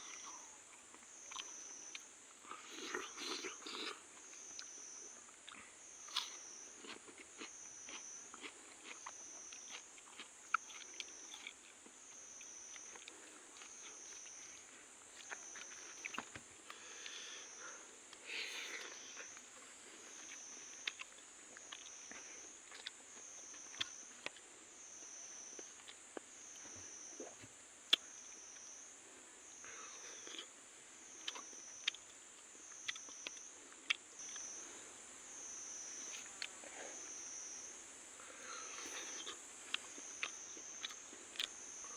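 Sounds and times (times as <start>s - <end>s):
high-pitched insect chorus: 0.0s - 41.9s
chewing: 0.1s - 24.5s, 29.7s - 30.6s, 31.2s - 34.5s, 38.3s - 41.9s.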